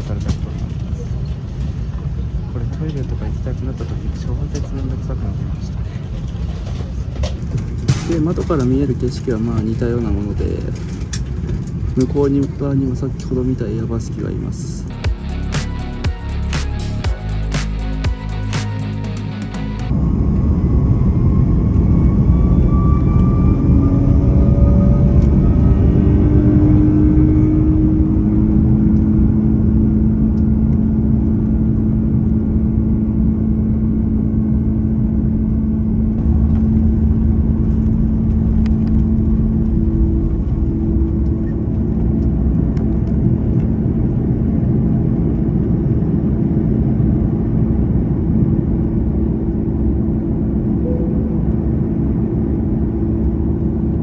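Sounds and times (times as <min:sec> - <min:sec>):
jet engines roaring: 0:36.0 - 0:54.0.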